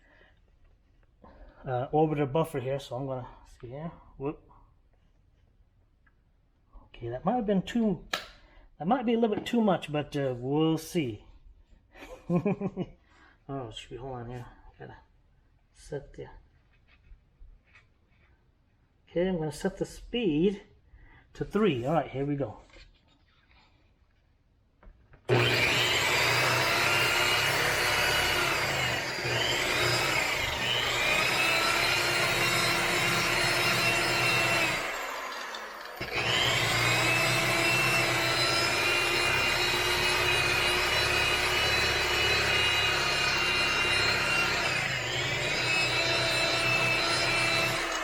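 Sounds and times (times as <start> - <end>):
electric buffer motor whine: 25.3 - 48.0.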